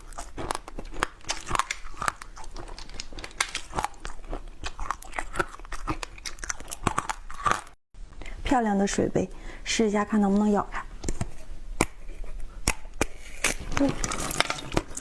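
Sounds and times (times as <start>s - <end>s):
crunching and chewing food: 0.0s - 7.8s, 11.8s - 15.0s.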